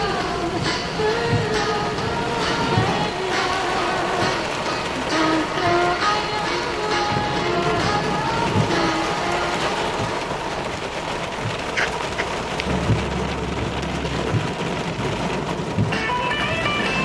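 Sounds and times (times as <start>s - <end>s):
steady rain falling: 0.0s - 17.0s
low rumble of thunder: 7.1s - 16.0s.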